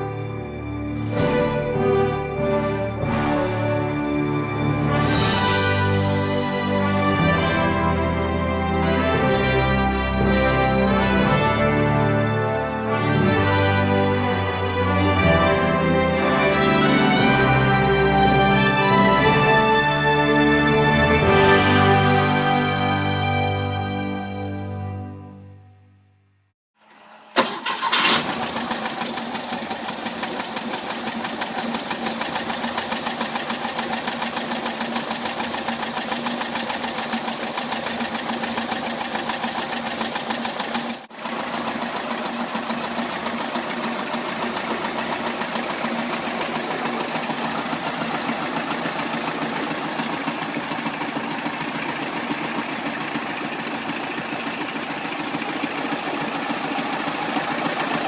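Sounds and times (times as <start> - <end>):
air-cooled engine idling: 27.0 - 58.0.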